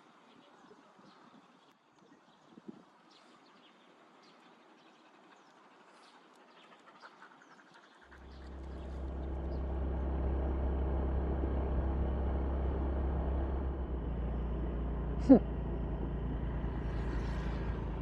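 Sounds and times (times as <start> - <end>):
vehicle engine starting and running: 8.1 - 18.0.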